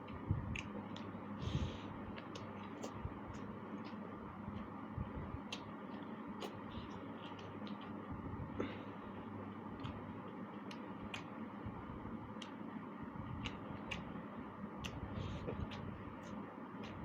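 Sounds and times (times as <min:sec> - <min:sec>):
eating clicks: 0:00.0 - 0:01.2, 0:02.1 - 0:04.6, 0:09.8 - 0:11.7
steady low hum: 0:00.0 - 0:17.0.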